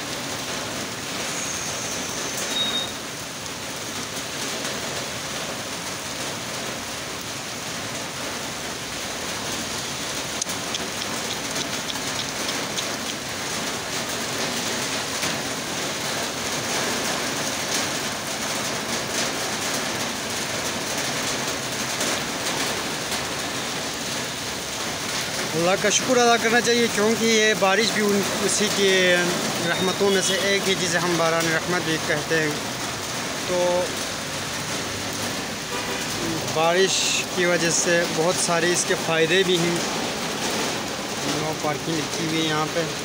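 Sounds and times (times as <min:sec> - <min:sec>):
torrential rain on paving: 0:00.0 - 0:43.0.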